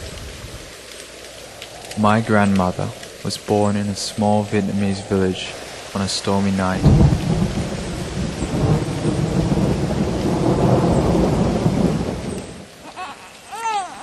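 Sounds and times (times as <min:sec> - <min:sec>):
rain: 0:00.0 - 0:14.0
thunder rumbling: 0:01.4 - 0:12.8
newborn baby crying: 0:12.8 - 0:14.0.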